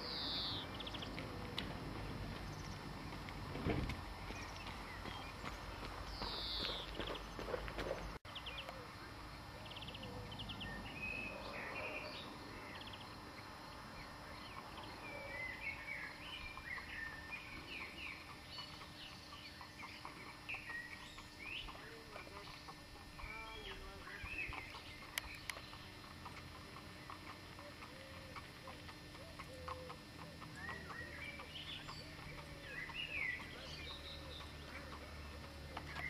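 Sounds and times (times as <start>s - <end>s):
small birds chirping: 0.0s - 3.2s, 4.0s - 36.0s
footsteps on gravel: 1.0s - 8.2s
horse hooves on gravel: 1.0s - 8.2s, 15.8s - 36.0s.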